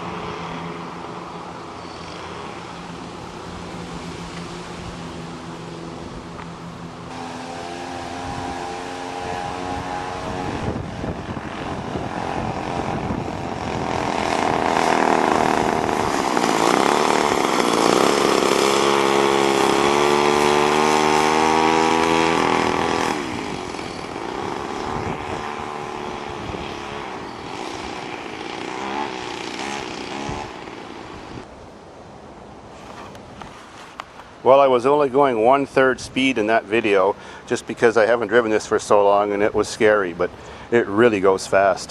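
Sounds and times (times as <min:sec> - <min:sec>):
two-stroke engine running: 0:05.1 - 0:31.4.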